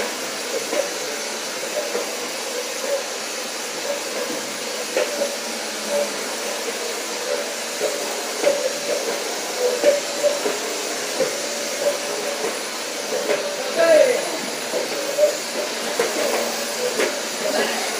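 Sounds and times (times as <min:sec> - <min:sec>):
vacuum cleaner running: 0:00.0 - 0:17.9.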